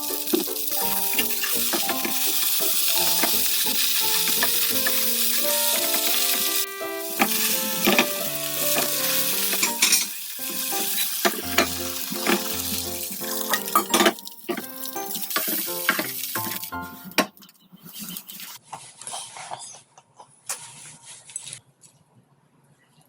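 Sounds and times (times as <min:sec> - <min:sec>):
pancake sizzling in oil: 0:00.0 - 0:17.2.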